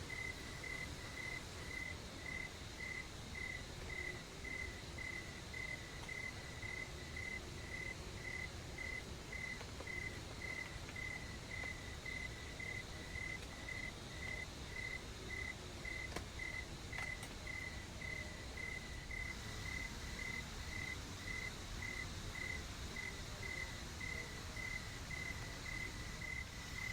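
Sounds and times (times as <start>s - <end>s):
insect chirping: 0.1s - 16.6s.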